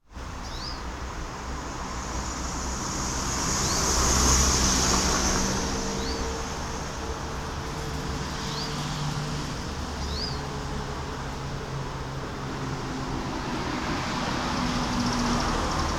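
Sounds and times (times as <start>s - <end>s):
road traffic passing: 0.1s - 15.9s
small bird chirping: 0.4s - 0.9s.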